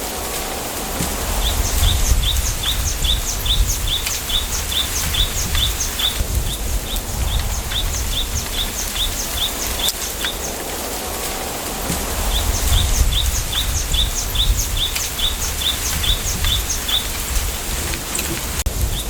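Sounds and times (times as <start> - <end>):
low rumble of wind: 0.0 - 19.0
small bird chirping: 1.4 - 10.6, 12.3 - 17.2.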